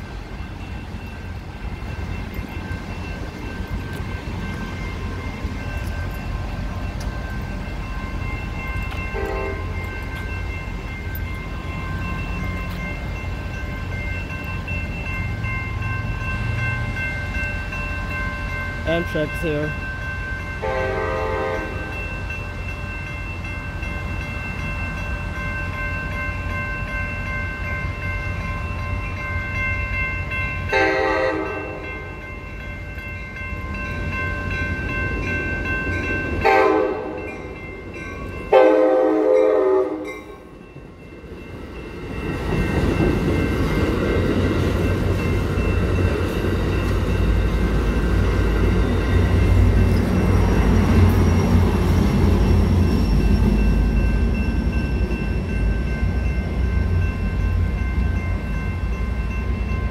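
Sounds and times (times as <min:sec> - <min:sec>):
railroad crossing bells ringing: 0:00.0 - 0:59.9
train rumbling through crossing: 0:00.0 - 0:59.9
train horn blasts: 0:09.1 - 0:09.8, 0:20.6 - 0:22.0, 0:30.7 - 0:31.9, 0:36.4 - 0:37.2, 0:38.5 - 0:40.3.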